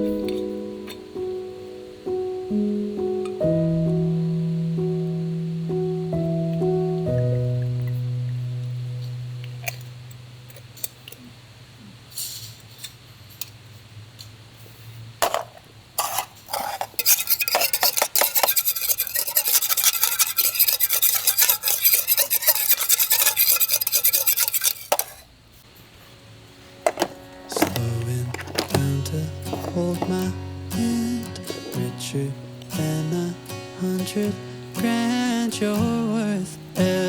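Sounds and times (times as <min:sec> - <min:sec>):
metal utensils scraping cookware: 0:16.0 - 0:25.3, 0:26.9 - 0:30.3.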